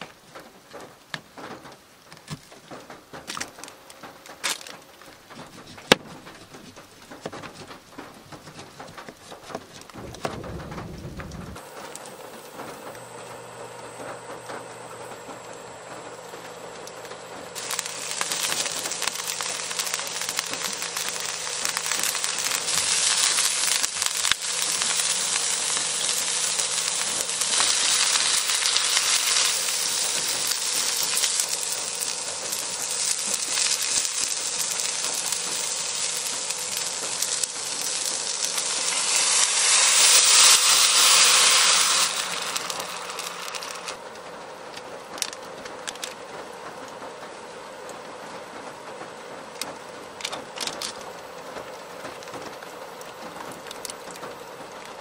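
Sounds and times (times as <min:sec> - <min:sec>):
food sizzling in frying pan: 0:16.7 - 0:44.0.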